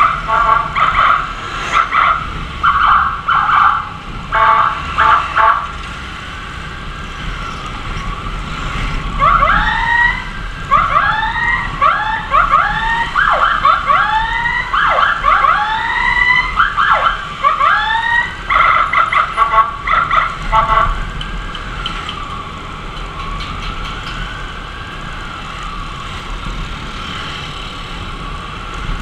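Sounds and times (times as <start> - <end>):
electronic siren yelping: 0.0 - 5.7, 9.1 - 21.1.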